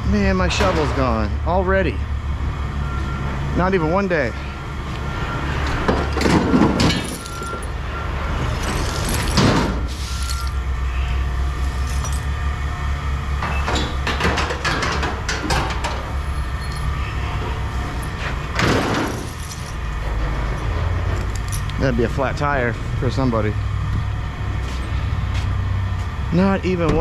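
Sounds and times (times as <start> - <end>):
vehicle engine idling: 0.0 - 14.2
clattering and banging: 0.4 - 1.3, 5.7 - 10.6, 13.4 - 21.7.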